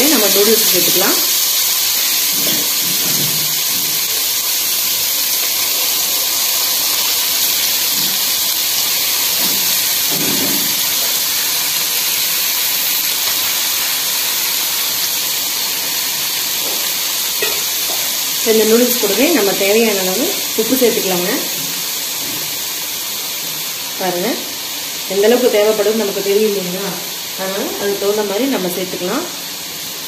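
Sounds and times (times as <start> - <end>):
vegetables sizzling in hot oil: 0.0 - 30.0.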